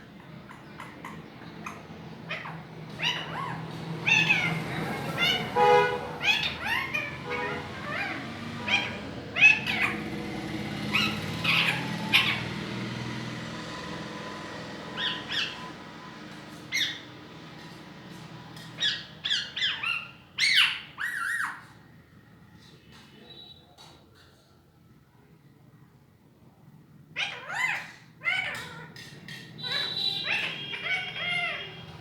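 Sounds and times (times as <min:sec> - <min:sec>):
baby parrot squawking: 0:01.0 - 0:10.2, 0:10.9 - 0:12.6, 0:14.9 - 0:15.7, 0:16.7 - 0:17.1, 0:18.7 - 0:21.8, 0:27.2 - 0:32.0.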